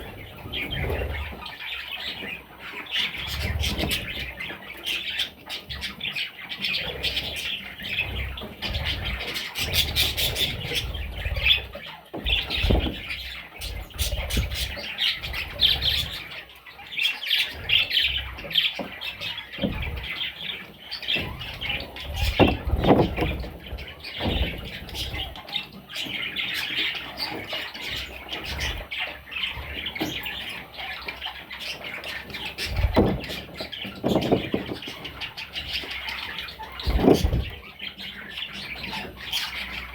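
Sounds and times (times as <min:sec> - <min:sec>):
budgerigars squawking and chattering: 0:00.0 - 0:39.9
dull knocks: 0:12.2 - 0:13.2, 0:21.2 - 0:23.6, 0:32.7 - 0:35.0.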